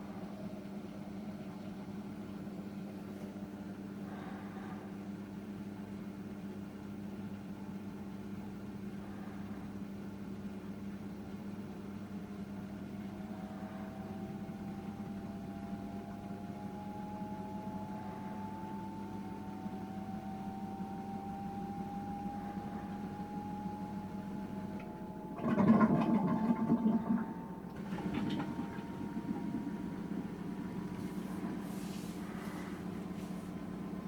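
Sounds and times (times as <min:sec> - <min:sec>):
motor whine rising in pitch: 0:13.1 - 0:34.0
washing machine drum turning: 0:23.0 - 0:34.0.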